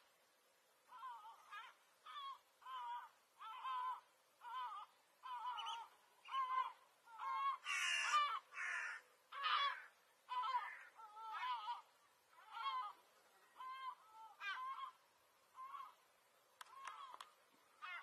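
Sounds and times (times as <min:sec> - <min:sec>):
harsh caw-like bird calls: 0:00.9 - 0:16.0, 0:16.6 - 0:18.0.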